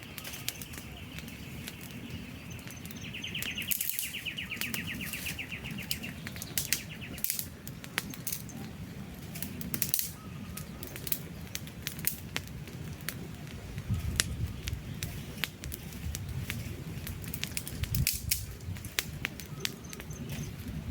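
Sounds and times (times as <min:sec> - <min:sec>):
bird trilling: 0:00.0 - 0:07.3
campfire crackling: 0:00.0 - 0:20.9.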